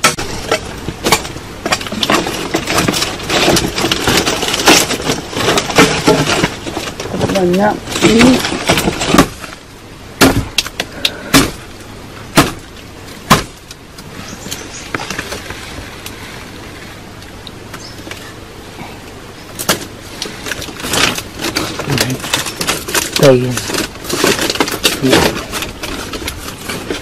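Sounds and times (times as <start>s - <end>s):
sharp knocks and cracks: 0.0s - 9.6s, 10.2s - 11.7s, 12.3s - 15.5s, 19.5s - 27.0s.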